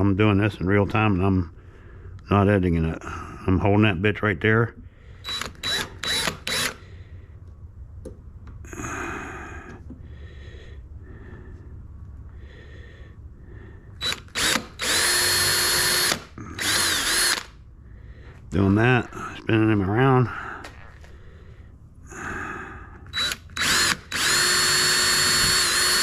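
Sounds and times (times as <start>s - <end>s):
power drill driving screws into wood: 5.2s - 6.8s, 14.0s - 17.5s, 23.1s - 26.0s.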